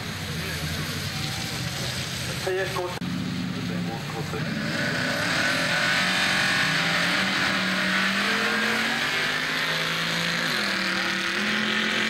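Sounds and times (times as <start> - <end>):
drag car engine at full throttle: 0.0 - 12.0.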